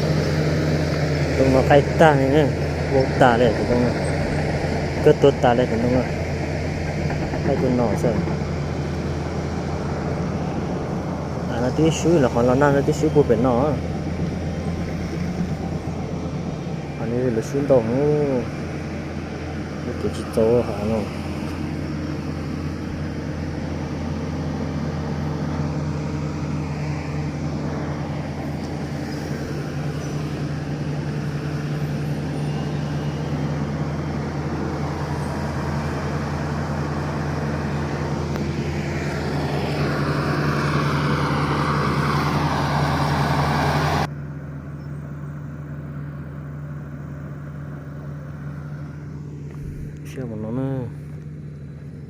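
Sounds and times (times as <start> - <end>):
diesel engine drone: 0.0 - 52.0
rushing noise with wavering whine: 48.1 - 51.5.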